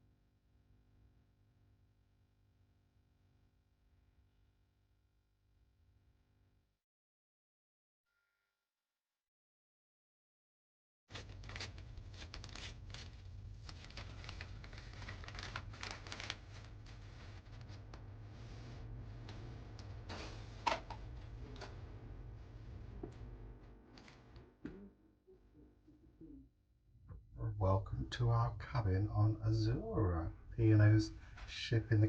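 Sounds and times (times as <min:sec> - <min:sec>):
rustling and crinkling: 0:11.1 - 0:24.9
faint low hum: 0:11.2 - 0:32.0.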